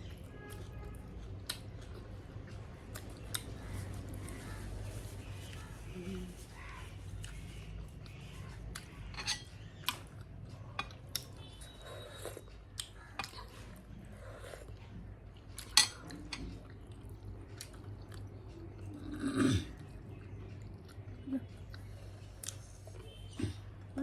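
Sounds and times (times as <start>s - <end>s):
chewing: 0.1s - 24.0s
cutlery scraping plates: 9.1s - 9.5s, 15.6s - 16.5s.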